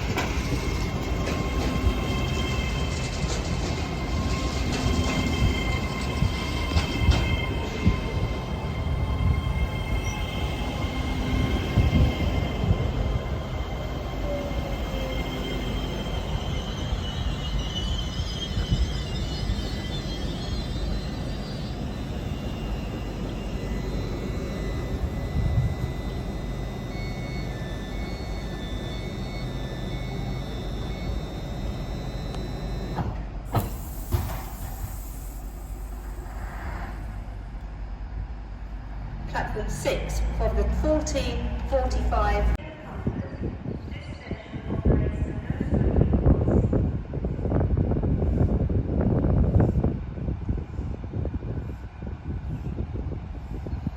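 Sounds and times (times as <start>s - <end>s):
high whine tones: 0.0s - 37.8s
train wheels rumbling on rails: 0.0s - 53.9s
high wheel squeal: 0.1s - 37.2s.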